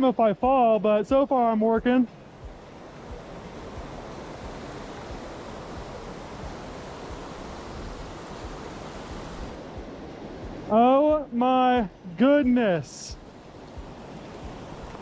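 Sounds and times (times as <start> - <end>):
waterfall rushing: 1.4 - 15.0.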